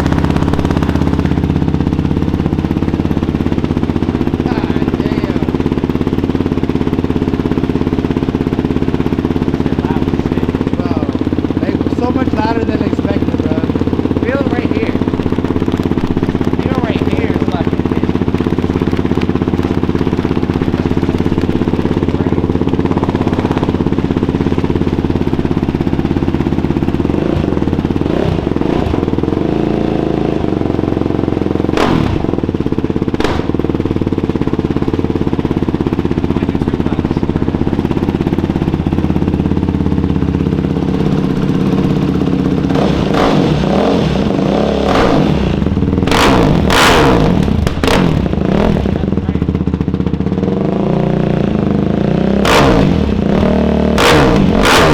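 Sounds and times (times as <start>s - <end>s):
engine revving: 0.0s - 5.6s, 7.3s - 35.0s, 35.6s - 54.9s
quad engine running: 0.0s - 54.9s
sharp knocks: 33.2s - 33.8s.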